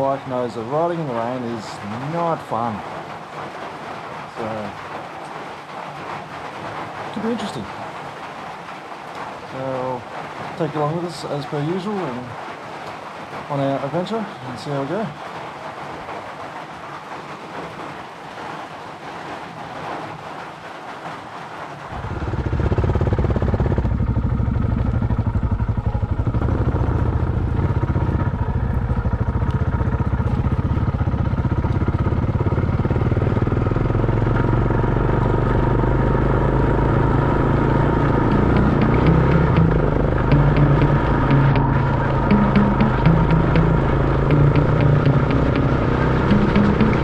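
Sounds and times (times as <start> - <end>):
motorcycle engine starting and idling: 22.0 - 47.0.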